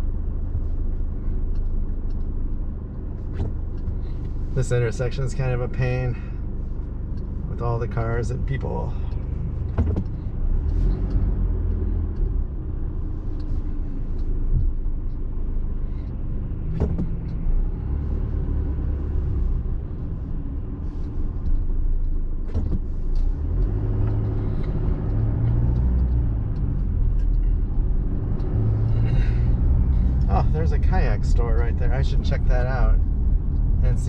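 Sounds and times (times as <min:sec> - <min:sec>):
truck engine and tyres rumbling: 0:00.0 - 0:34.0.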